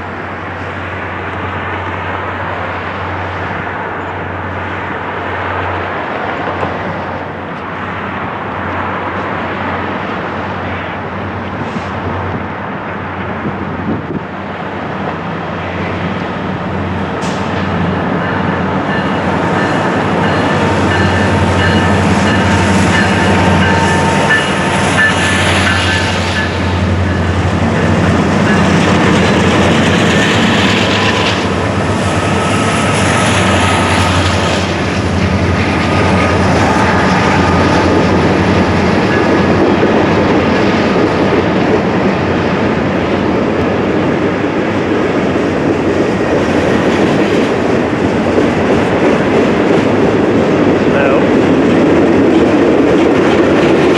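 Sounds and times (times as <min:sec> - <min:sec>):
train rolling rumble: 0:00.0 - 0:53.9
high wheel squeal: 0:19.6 - 0:27.3.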